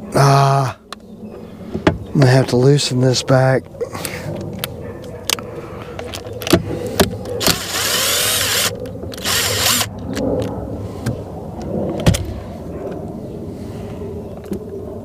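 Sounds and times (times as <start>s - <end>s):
clicks and knocks of parts handled: 4.0s - 7.7s
cordless drill loosening screws: 7.4s - 9.9s.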